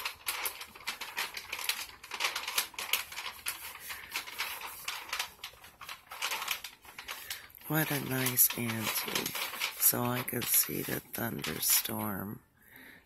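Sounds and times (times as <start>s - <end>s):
drapes clicking and rustling: 0.0s - 12.4s.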